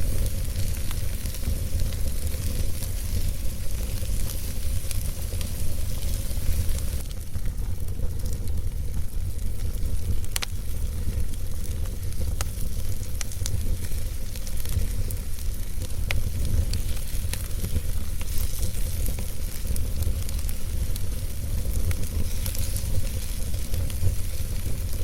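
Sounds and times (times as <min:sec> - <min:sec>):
fire crackling and popping: 0:00.0 - 0:25.0
fire rumbling and hissing: 0:00.0 - 0:25.0.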